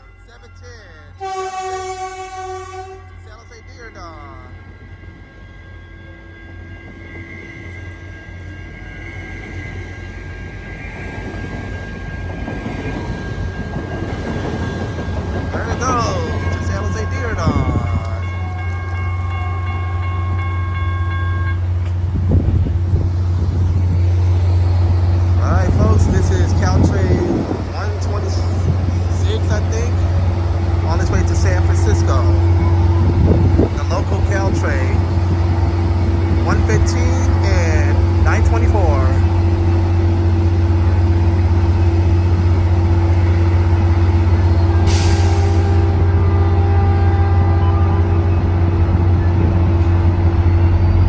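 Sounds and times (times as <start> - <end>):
diesel locomotive droning: 0.0 - 51.0
train traction motor whine: 1.1 - 51.0
hiss burst: 44.9 - 45.8.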